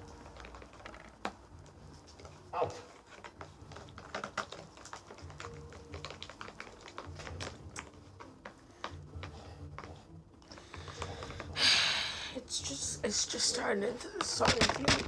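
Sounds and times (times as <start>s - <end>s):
sticky clicks of glue mixture: 0.0s - 11.6s, 12.3s - 15.0s.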